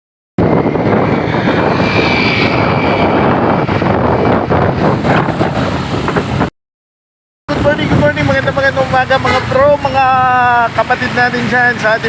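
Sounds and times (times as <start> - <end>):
wind rushing over microphone: 0.4 - 6.5, 7.5 - 10.9.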